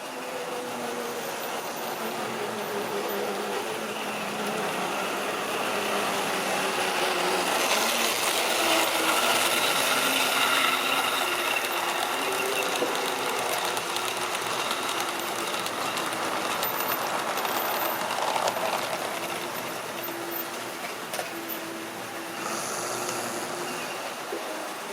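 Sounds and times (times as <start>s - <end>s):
wheels rattling over rails: 0.0s - 24.9s
small electric motor humming: 0.4s - 17.8s.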